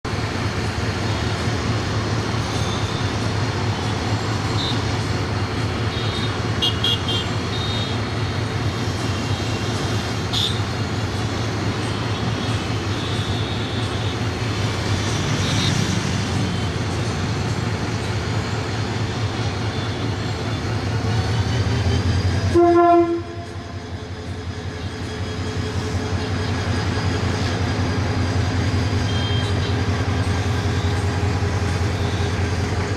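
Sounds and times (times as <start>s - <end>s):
diesel train rumbling: 0.0s - 32.9s
train horn toot: 21.3s - 23.7s, 29.0s - 29.8s.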